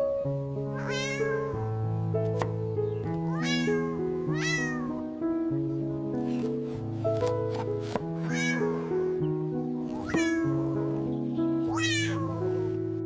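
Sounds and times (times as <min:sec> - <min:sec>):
background music of held notes: 0:00.0 - 0:13.0
cat meowing: 0:00.8 - 0:01.7, 0:03.2 - 0:05.0, 0:08.3 - 0:09.0, 0:09.9 - 0:10.8, 0:11.7 - 0:12.7.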